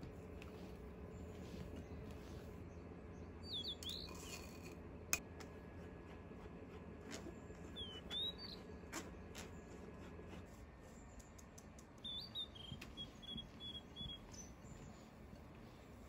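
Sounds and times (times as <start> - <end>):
small bird chirping: 2.6 - 4.7, 7.6 - 9.5, 10.8 - 15.2.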